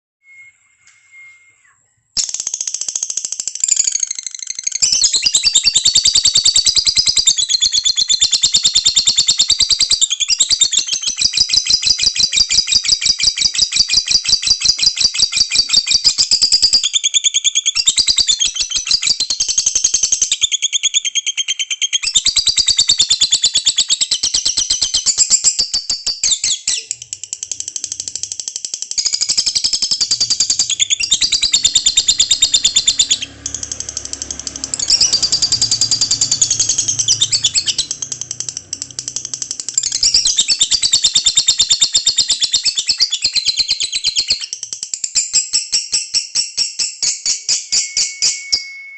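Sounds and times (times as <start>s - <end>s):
lovebird rattling chatter: 2.2s - 5.8s, 26.8s - 45.4s.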